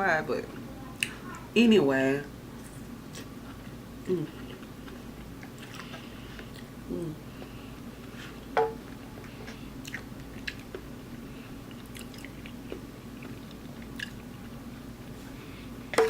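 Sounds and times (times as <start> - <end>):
steady low hum: 0.0 - 16.0
wet chewing mouth clicks: 9.5 - 10.8, 11.7 - 14.3.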